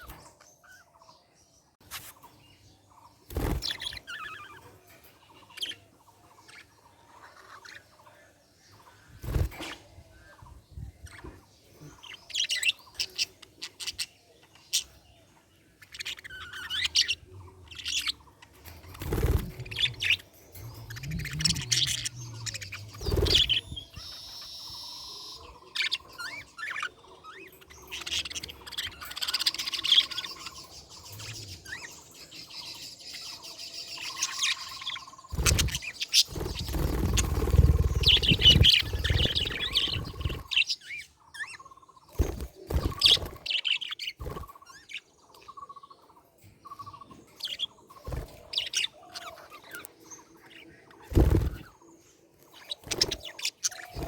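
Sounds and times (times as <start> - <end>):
budgerigars chirping: 15.8 - 51.8, 52.5 - 54.0.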